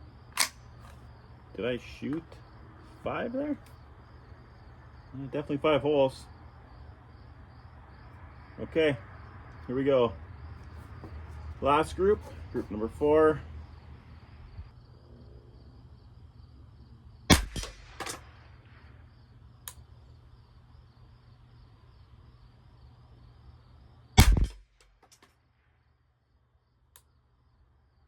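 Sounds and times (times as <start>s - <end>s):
rifle shots: 17.3s - 18.4s, 24.2s - 24.8s
faint clicks: 19.6s - 19.8s, 26.9s - 27.1s.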